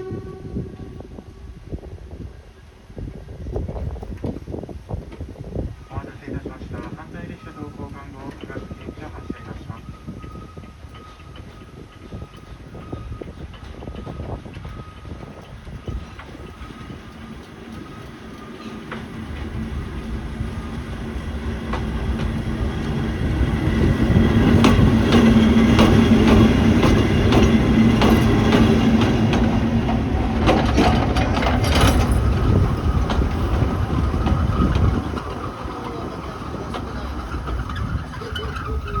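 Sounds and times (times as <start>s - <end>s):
train rumbling on rails: 0.0s - 39.0s
wheels clattering over track: 13.3s - 39.0s.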